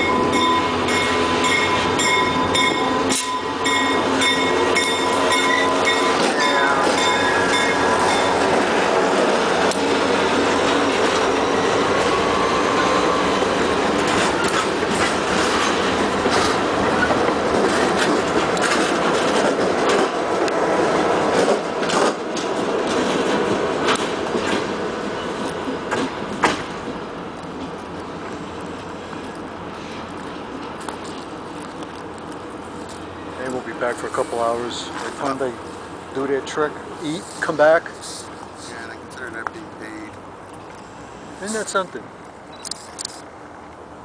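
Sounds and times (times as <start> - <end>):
high wheel squeal: 0.0 - 8.6, 11.3 - 13.6
wheels clicking over rail joints: 0.0 - 35.5
freight train rolling past: 0.0 - 42.2.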